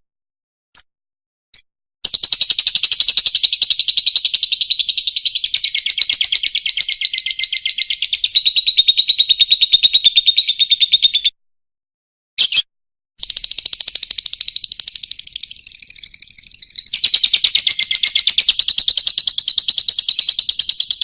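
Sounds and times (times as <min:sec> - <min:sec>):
lovebird chirps: 0:01.5 - 0:11.3, 0:12.4 - 0:21.0
lovebird high trill: 0:13.2 - 0:21.0.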